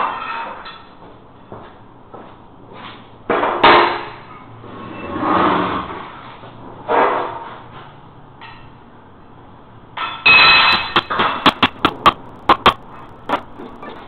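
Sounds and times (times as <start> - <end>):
loud harsh noise: 10.1 - 14.0.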